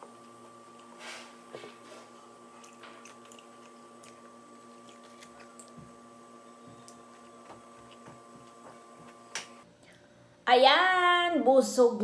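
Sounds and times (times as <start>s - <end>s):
steady low hum: 0.0s - 11.0s
person chewing with mouth clicks: 2.5s - 6.0s.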